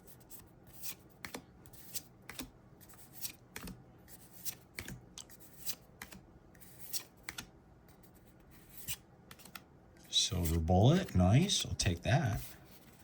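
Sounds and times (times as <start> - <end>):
cards flicking and sliding: 0.8 - 7.5, 8.7 - 9.7.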